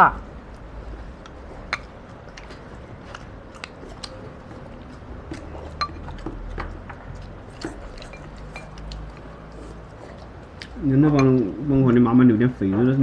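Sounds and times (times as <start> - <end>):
chopsticks clinking on bowls: 4.9 - 9.3, 10.1 - 11.6.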